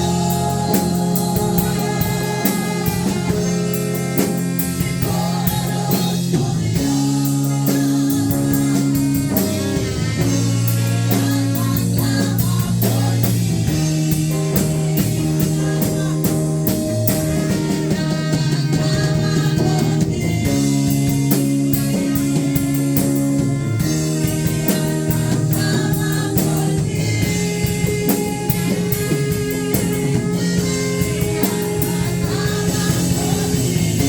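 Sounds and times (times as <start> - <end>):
person singing: 0.0 - 13.5, 14.4 - 23.2
drum kit: 0.0 - 34.0
guitar: 0.0 - 34.0.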